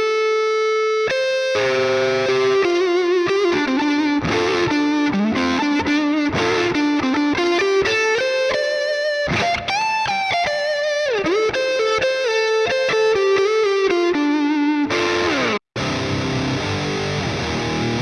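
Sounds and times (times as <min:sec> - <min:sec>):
electric guitar lead line: 0:00.0 - 0:18.0.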